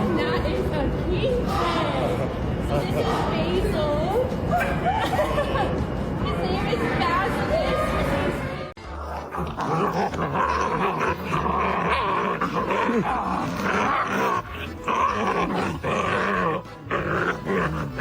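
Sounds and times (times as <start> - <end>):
dog vocalising: 8.9 - 18.0.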